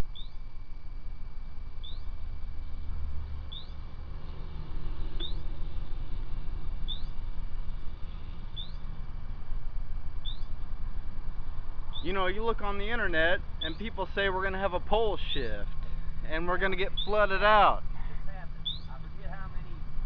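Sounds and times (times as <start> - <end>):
bird chirping: 0.0 - 0.5, 1.8 - 2.3, 3.4 - 9.1, 10.2 - 10.8, 11.4 - 19.7
steady low rumble: 0.0 - 20.0.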